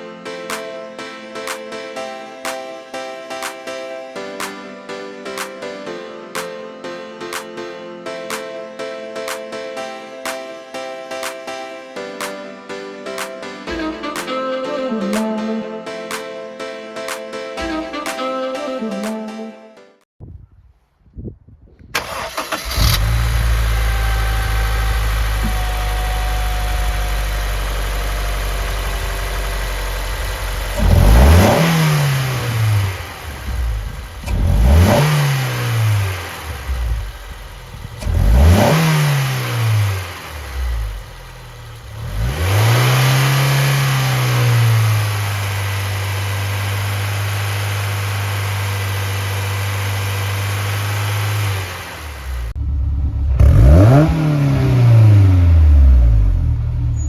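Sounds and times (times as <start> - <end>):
car engine idling and revving: 22.0 - 57.0.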